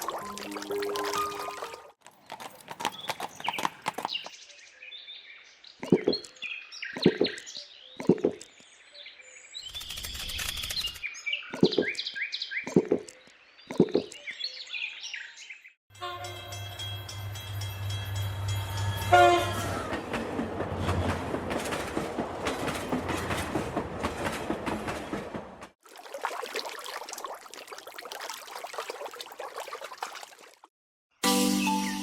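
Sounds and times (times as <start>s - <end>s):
small birds chirping: 2.2s - 15.8s.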